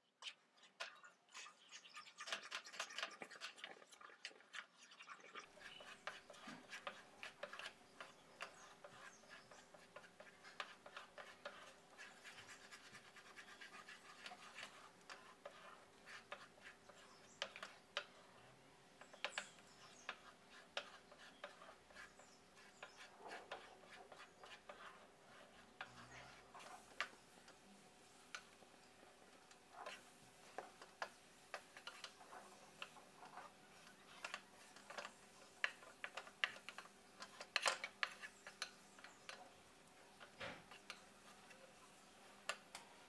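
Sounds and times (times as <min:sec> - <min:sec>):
wooden spatula scraping a pan: 0:00.2 - 0:18.4, 0:19.0 - 0:43.0
small irregular clicks: 0:30.6 - 0:41.1.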